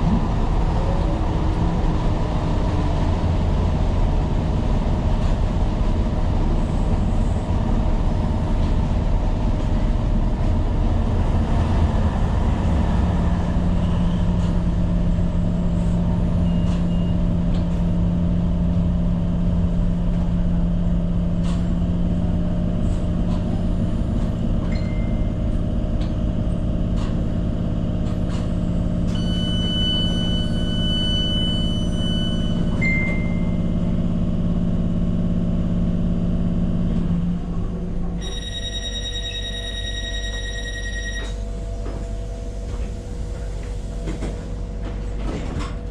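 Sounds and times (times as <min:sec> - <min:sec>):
train rumble: 0:00.0 - 0:45.9
short high tones: 0:29.1 - 0:33.6.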